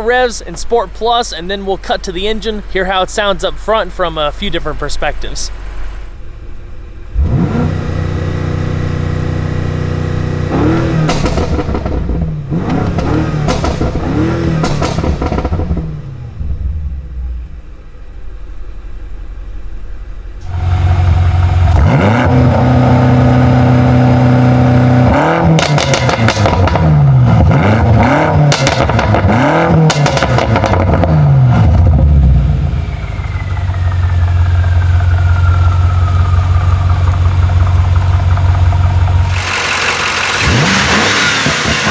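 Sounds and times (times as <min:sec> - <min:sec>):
engine idling: 0:00.0 - 0:10.5, 0:11.1 - 0:21.9, 0:31.8 - 0:41.9
exhaust crackles and pops: 0:00.0 - 0:16.2, 0:25.0 - 0:41.9
car engine revving: 0:00.0 - 0:19.4, 0:20.2 - 0:41.9
faint whistle: 0:32.8 - 0:37.4.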